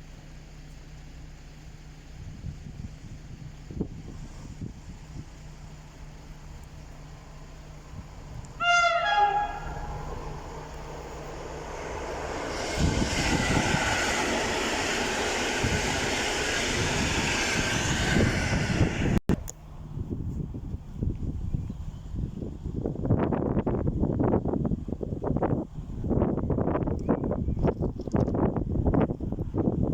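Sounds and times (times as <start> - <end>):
train wheels rumbling over track: 0.0 - 29.9
train horn blast: 8.5 - 10.8.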